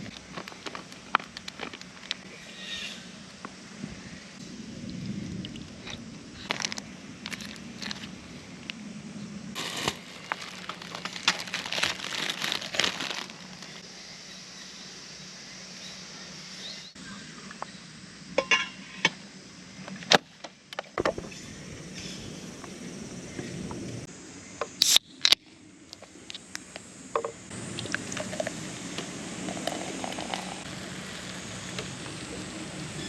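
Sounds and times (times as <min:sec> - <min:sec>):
objects crinkling and rustling: 0:00.0 - 0:02.2, 0:05.8 - 0:08.1, 0:09.6 - 0:13.8.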